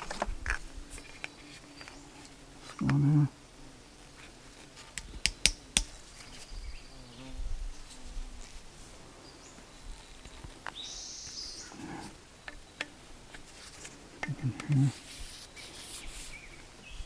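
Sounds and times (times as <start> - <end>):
handling noises: 4.6 - 6.4, 11.6 - 16.8
sharp clicks: 5.0 - 6.0.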